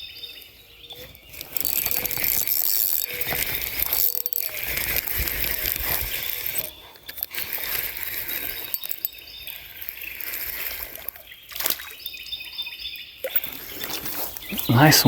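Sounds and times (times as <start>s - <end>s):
river water sloshing and splashing: 9.7s - 14.4s.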